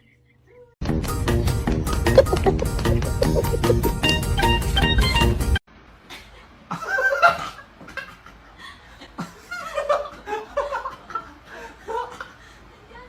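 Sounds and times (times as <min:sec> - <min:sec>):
music: 0:00.8 - 0:05.6
person laughing: 0:02.1 - 0:03.9.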